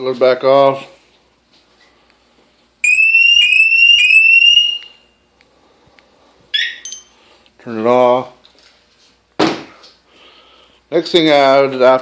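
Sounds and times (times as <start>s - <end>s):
motorcycle alarm chirps: 2.8s - 5.2s, 6.5s - 7.2s.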